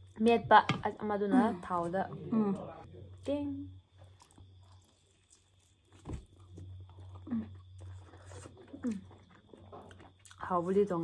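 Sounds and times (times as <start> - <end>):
biting and chewing: 3.9 - 11.0.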